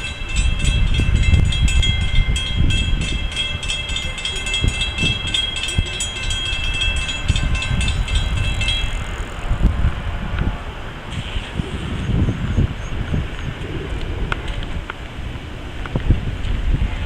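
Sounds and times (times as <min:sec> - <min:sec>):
pulsing high ringing tones: 0:00.0 - 0:09.6
train rumbling past: 0:00.0 - 0:17.0.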